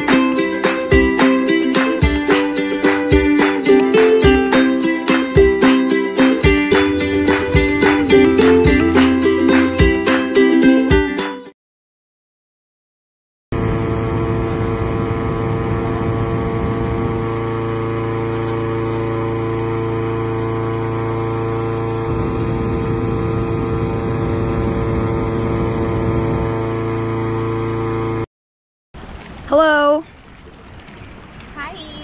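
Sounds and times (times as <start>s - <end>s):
engine-driven inflator fan running: 0.0s - 10.5s, 13.6s - 28.3s.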